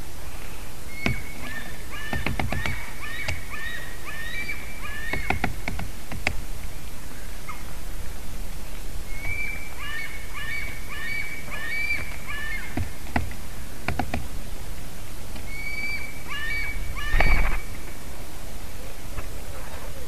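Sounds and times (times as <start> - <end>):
birds calling falling notes: 0.0 - 20.0
sharp clicks: 2.1 - 3.5, 5.1 - 6.4.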